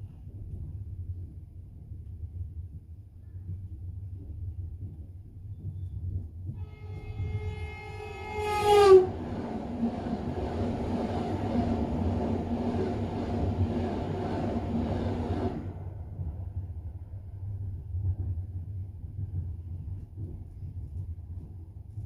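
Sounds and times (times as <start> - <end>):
low rumble of moving train: 0.0 - 22.0
train horn: 6.5 - 11.7
rush of train cars passing: 6.6 - 18.9.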